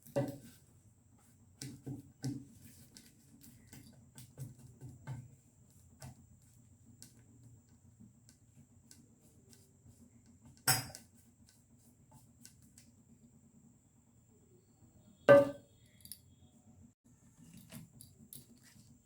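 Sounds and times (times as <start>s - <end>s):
dishes clattering: 15.3s - 15.6s.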